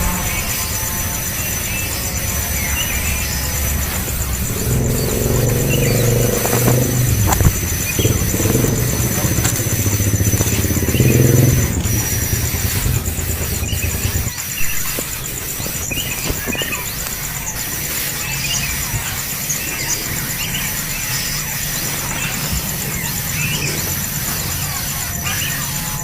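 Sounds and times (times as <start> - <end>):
high pulsing buzz: 0.0 - 26.0
vehicle engine running: 0.0 - 26.0.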